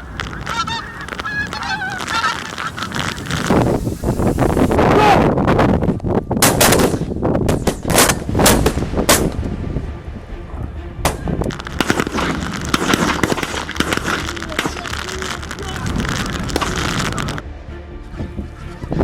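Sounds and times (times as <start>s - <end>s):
geese honking: 0.0s - 3.7s, 11.5s - 17.4s
wind buffeting microphone: 0.0s - 17.4s
shotgun shots: 6.4s - 9.5s, 11.1s - 17.4s.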